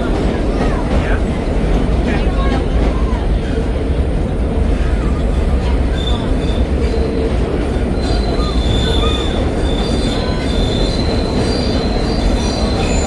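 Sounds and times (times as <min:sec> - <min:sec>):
subway train rumbling: 0:00.0 - 0:13.0
wheels squealing: 0:04.8 - 0:13.0.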